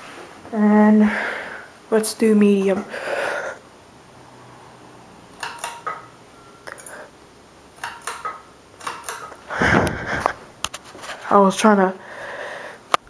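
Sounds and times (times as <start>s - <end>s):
fan pull chain clicks and rattles: 5.4s - 6.1s, 7.8s - 9.4s.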